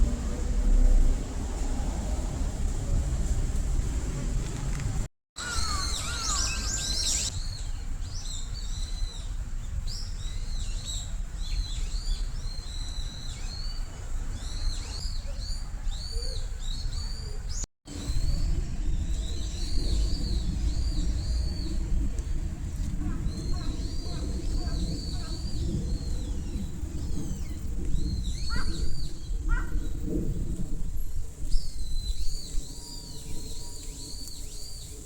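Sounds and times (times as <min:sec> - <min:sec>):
steady low rumble: 0:00.0 - 0:08.1, 0:17.9 - 0:35.0
small birds chirping: 0:05.4 - 0:35.0.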